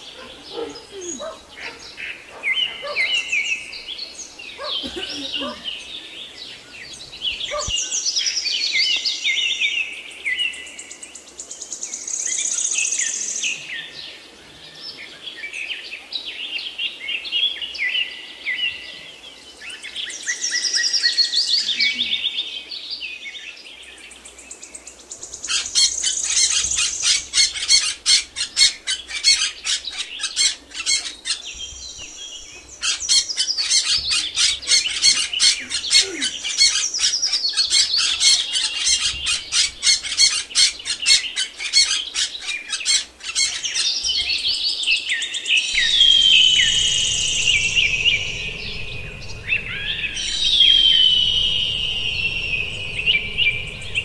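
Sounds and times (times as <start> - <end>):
small birds twittering: 0.0 - 54.0.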